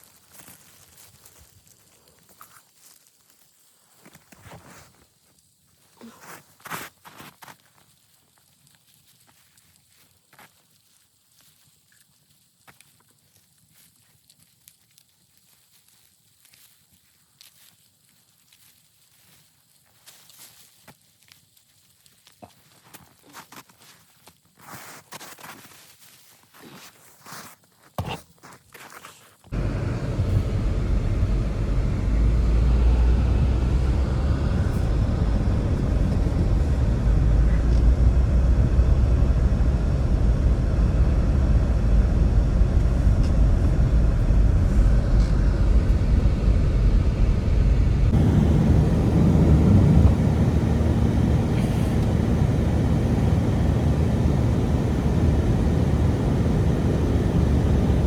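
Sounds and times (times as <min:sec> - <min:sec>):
strong storm wind: 0:29.6 - 0:58.0.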